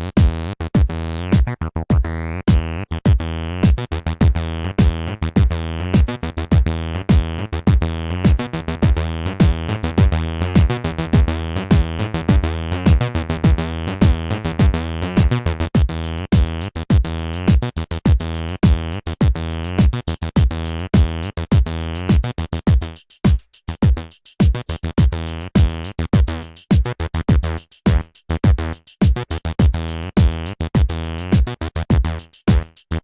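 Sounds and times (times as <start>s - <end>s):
acid synth bassline: 0.0s - 23.0s, 24.7s - 33.0s
drum machine beat: 0.0s - 33.0s
high percussion pattern: 15.2s - 33.0s.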